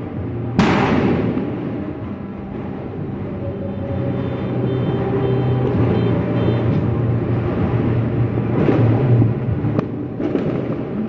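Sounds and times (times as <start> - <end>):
sharp firework cracks: 0.6 - 1.8, 9.8 - 11.0
fireworks bursts echoing: 8.5 - 11.0.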